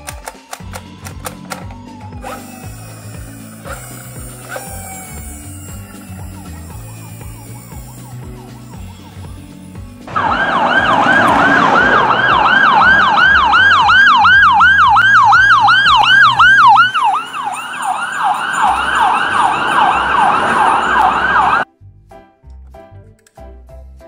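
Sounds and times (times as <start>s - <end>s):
ambulance siren on fast yelp: 0.9s - 21.7s.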